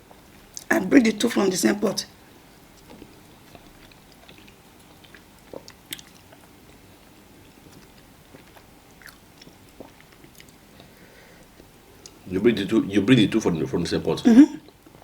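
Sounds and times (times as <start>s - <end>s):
chewing with mouth smacks: 2.8s - 10.9s.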